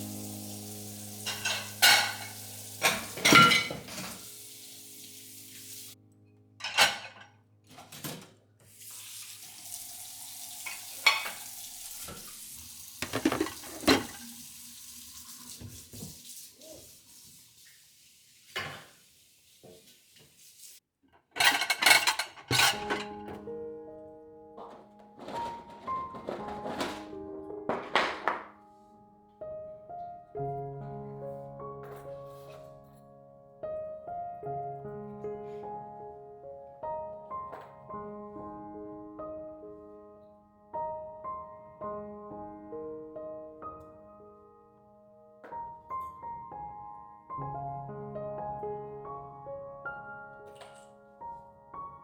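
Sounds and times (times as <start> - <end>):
food frying in a pan: 0.0 - 6.0, 8.7 - 20.8
dishes and cutlery clinking: 1.2 - 4.3, 6.6 - 8.4, 10.6 - 11.4, 13.0 - 14.3, 21.2 - 23.4, 24.6 - 27.1.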